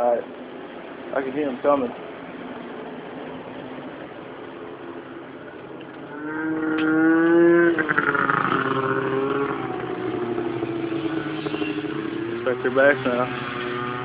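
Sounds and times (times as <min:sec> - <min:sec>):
snowmobile engines: 0:06.0 - 0:14.0.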